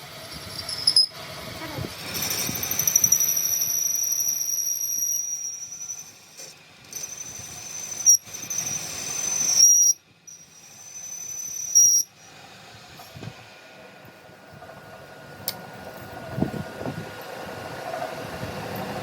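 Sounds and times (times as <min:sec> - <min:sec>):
high-pitched hissing whistle: 0:00.5 - 0:01.2, 0:02.3 - 0:06.2, 0:06.9 - 0:12.2.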